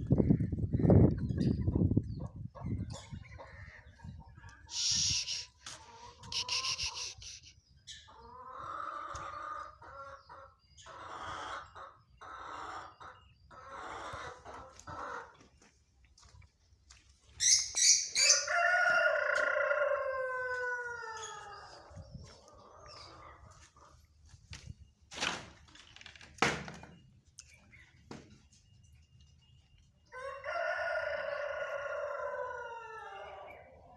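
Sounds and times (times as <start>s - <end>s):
chickens calling: 0.2s - 15.7s, 17.4s - 24.3s
high chirps: 4.7s - 5.6s, 6.2s - 7.5s
rooster crowing: 18.2s - 21.7s, 30.2s - 33.6s.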